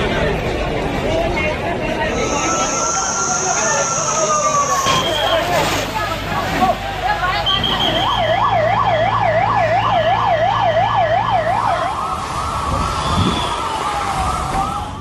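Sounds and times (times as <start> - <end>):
wailing siren: 2.1 - 5.6, 7.2 - 15.0
emergency siren warbling: 2.1 - 6.0, 6.7 - 15.0.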